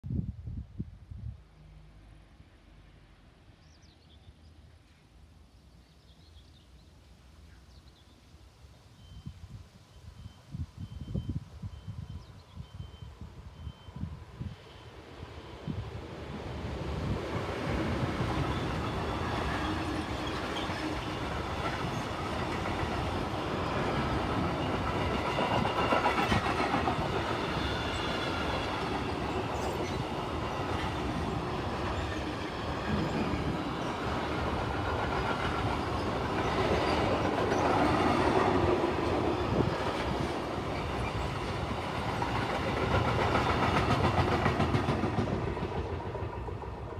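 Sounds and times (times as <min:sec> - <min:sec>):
freight train wheels rumbling: 0:14.2 - 0:46.9.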